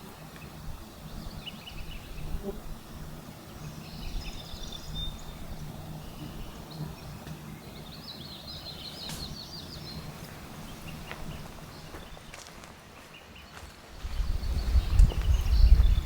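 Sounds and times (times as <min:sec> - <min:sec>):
songbird chirping: 0:03.4 - 0:16.0.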